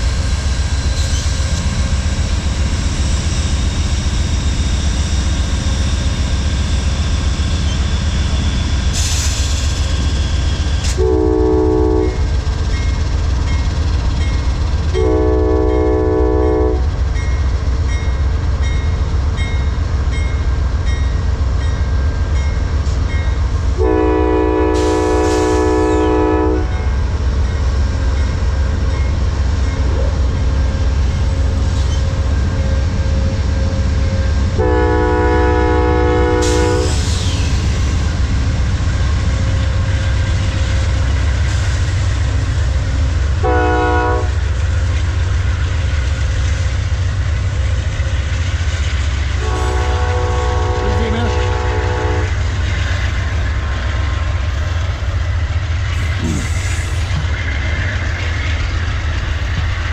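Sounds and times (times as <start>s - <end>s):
locomotive engine rumble: 0.0s - 59.9s
locomotive horn blasts: 11.0s - 12.2s, 14.9s - 16.9s, 23.8s - 26.9s, 34.6s - 36.9s, 43.4s - 44.4s, 49.4s - 52.4s.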